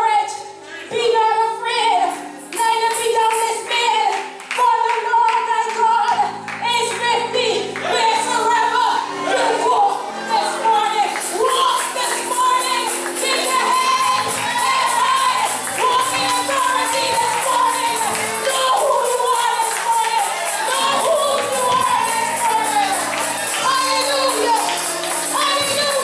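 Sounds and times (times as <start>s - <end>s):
instrumental chords: 6.2s - 26.0s
voices singing gospel: 7.2s - 26.0s
tambourine shaking: 11.2s - 26.0s.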